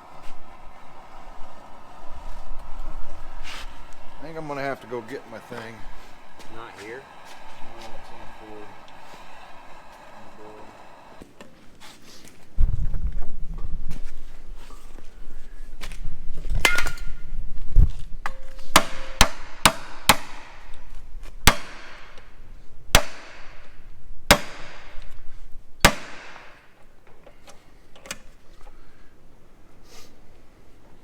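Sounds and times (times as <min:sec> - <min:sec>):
hammer striking steel: 0:18.3 - 0:20.6, 0:21.5 - 0:22.2, 0:23.0 - 0:23.7, 0:24.3 - 0:25.0, 0:25.9 - 0:26.6.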